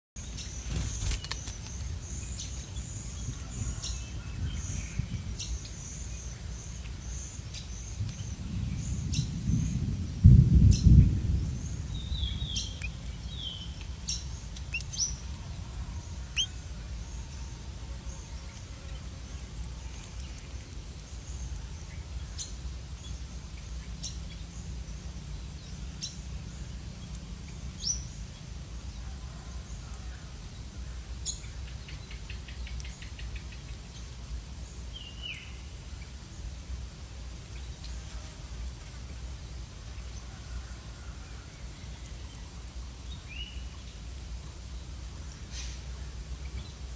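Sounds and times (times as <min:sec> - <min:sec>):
small birds chirping: 0:00.2 - 0:10.0, 0:10.6 - 0:28.6.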